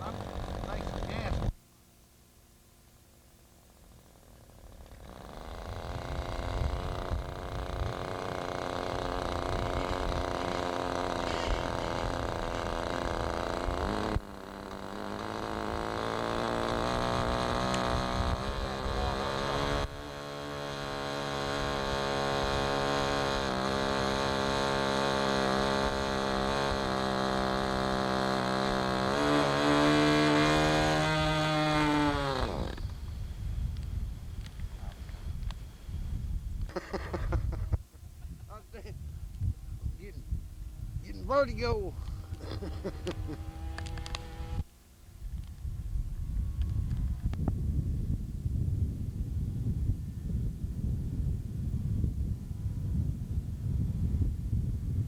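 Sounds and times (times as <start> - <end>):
model airplane engine buzzing: 0.0 - 1.6, 3.7 - 37.7, 41.0 - 49.0.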